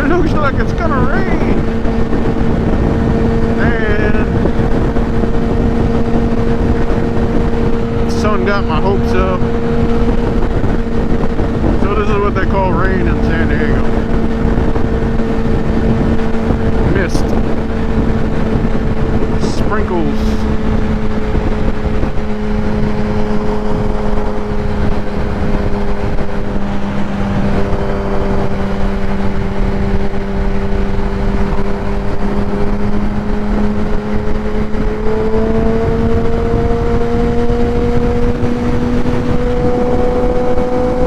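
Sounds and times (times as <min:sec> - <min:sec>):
motorcycle engine cruising: 0:00.0 - 0:41.0
wind rush on microphone: 0:00.0 - 0:41.0.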